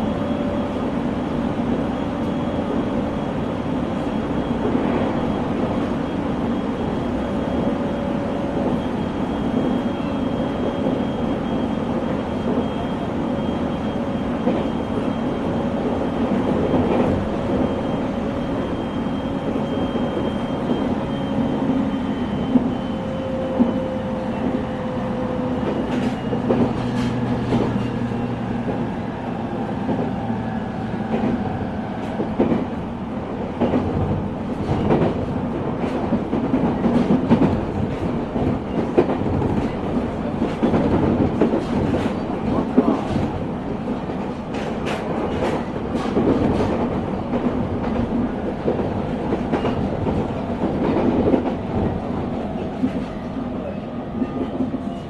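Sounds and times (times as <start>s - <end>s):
train wheels rumbling on rail: 0.0s - 55.0s
rail-joint clicks: 25.5s - 28.9s, 31.0s - 32.8s, 33.4s - 53.4s.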